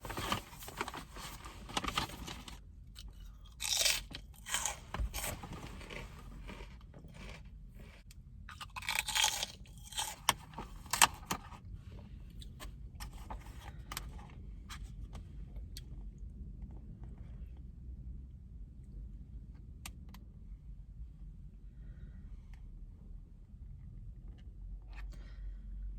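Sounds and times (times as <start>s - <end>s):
chewing crisp food: 3.0s - 11.1s.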